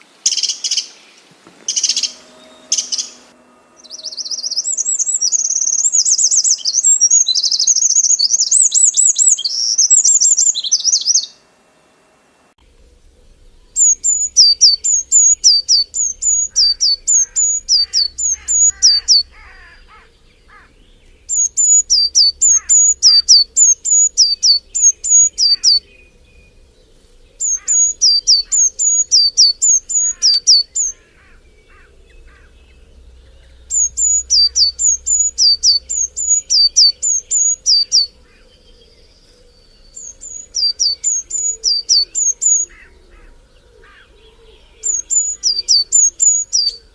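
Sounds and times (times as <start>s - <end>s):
faint lower bird chirps: 0.3s - 11.4s, 12.7s - 46.9s
bird singing sharp high notes: 1.6s - 11.4s, 13.7s - 38.4s
dense high warbling chatter: 12.7s - 38.7s.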